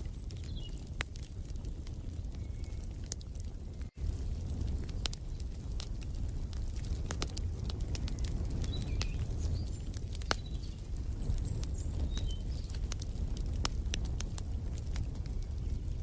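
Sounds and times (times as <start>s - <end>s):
wood fire crackling: 0.0s - 16.0s
faint bird chirps: 2.3s - 3.0s.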